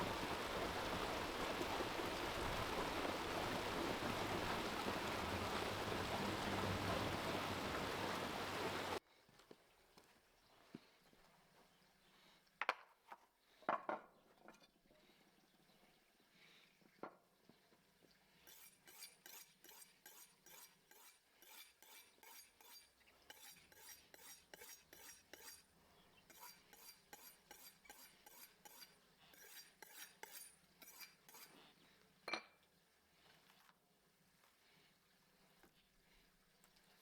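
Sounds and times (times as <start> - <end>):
metal utensil scraping a dish: 18.5 - 25.6, 26.3 - 31.5.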